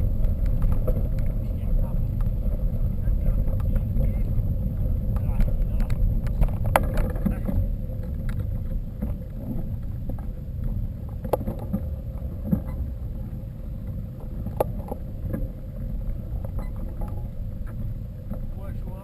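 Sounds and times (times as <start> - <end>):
bike tyres rumbling on rough ground: 0.0 - 19.0
bike rattling clicks and knocks: 5.1 - 10.3.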